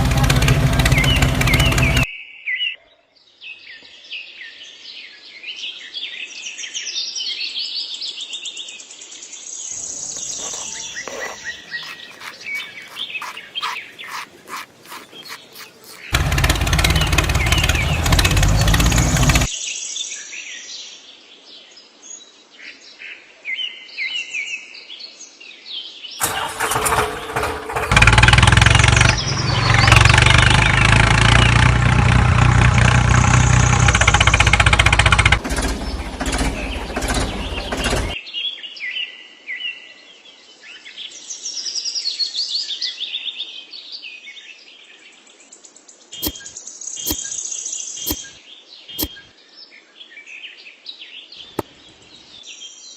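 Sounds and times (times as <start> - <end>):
birds chirping: 0.0 - 2.1, 9.7 - 19.5, 26.2 - 31.9, 32.6 - 38.2, 46.2 - 49.3
engine running: 0.0 - 2.1, 9.9 - 19.5, 26.2 - 38.2, 46.2 - 46.5
sharp clicks: 46.2 - 46.5, 48.1 - 48.3.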